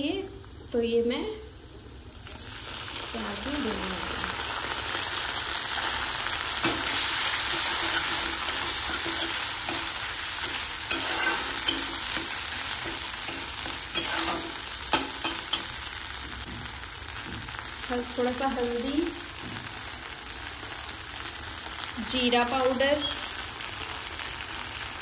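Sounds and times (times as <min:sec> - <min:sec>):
paste sizzling in hot oil: 0:01.6 - 0:25.0
steel spatula scraping pan: 0:06.6 - 0:15.7.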